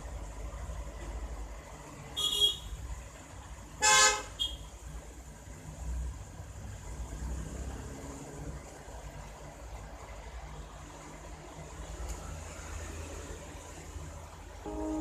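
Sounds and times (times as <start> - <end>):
horn-like honks: 14.7 - 15.0.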